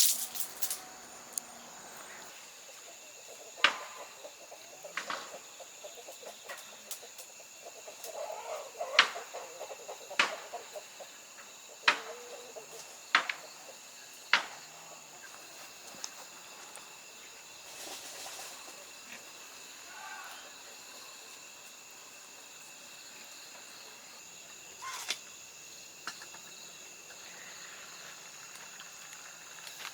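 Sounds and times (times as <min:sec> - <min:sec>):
high insect drone: 0:00.0 - 0:29.9
chickens clucking: 0:02.7 - 0:12.9.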